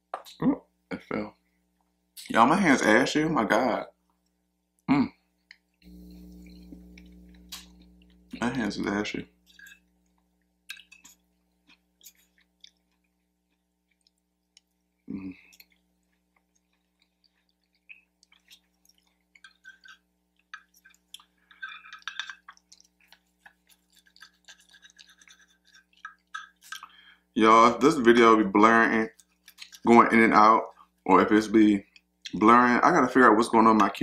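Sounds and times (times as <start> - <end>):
faint steady hum: 0.3 - 34.0
chewing food: 5.4 - 8.7, 9.4 - 27.3, 28.9 - 29.9, 30.7 - 31.0.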